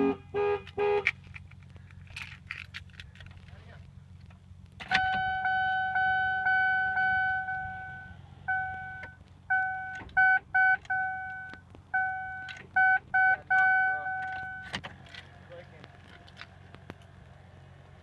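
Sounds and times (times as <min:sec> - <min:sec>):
car horn blasts: 0:00.0 - 0:01.2, 0:04.9 - 0:14.7.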